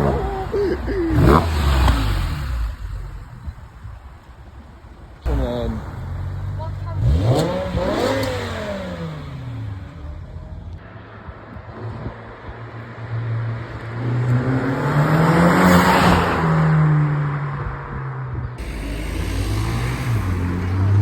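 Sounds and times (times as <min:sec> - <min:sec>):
car engine passing: 0:00.0 - 0:03.8, 0:12.3 - 0:17.5, 0:18.6 - 0:21.0.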